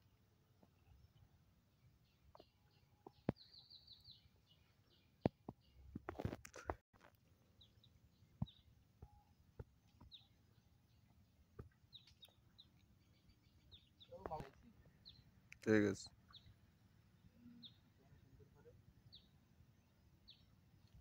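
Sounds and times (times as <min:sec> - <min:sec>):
faint bird chirps: 0:07.6 - 0:21.0.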